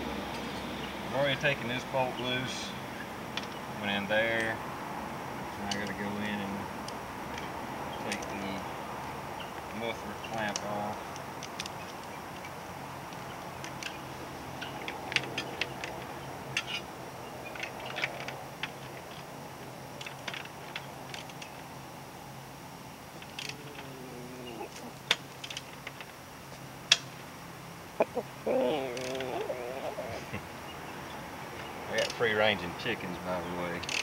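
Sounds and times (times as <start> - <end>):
chicken calling: 23.4 - 25.1, 27.9 - 30.5.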